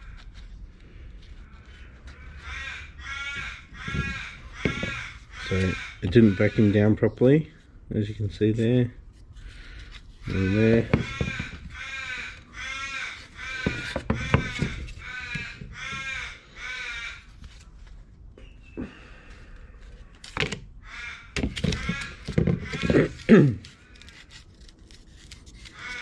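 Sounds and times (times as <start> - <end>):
bird calling: 1.4 - 7.3, 9.5 - 17.3
sharp knocks: 3.3 - 5.8, 10.4 - 12.0, 13.5 - 16.2.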